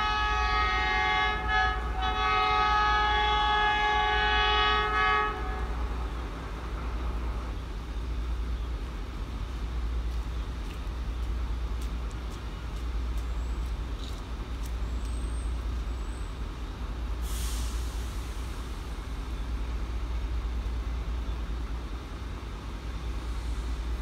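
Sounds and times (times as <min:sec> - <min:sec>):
train rumbling: 0:00.0 - 0:24.0
air hiss: 0:17.2 - 0:19.2.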